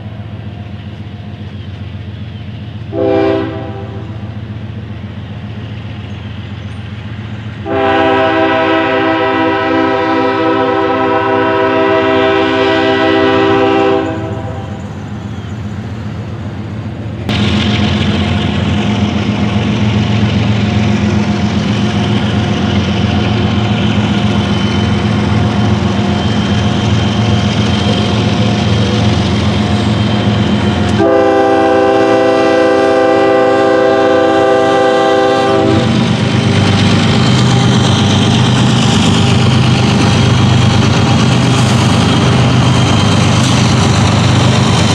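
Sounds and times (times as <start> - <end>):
locomotive engine throbbing: 0.0 - 44.9
train running by: 0.0 - 44.9
locomotive air horn: 2.9 - 4.2, 7.6 - 14.8, 30.9 - 36.0.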